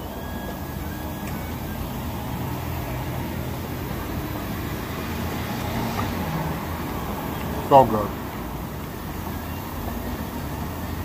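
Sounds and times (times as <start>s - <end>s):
motor vehicle humming: 0.0s - 11.0s.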